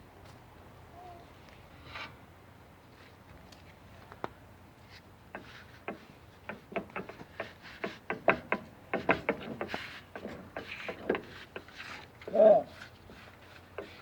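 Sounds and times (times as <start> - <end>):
knocks and clicks: 5.9 - 11.7.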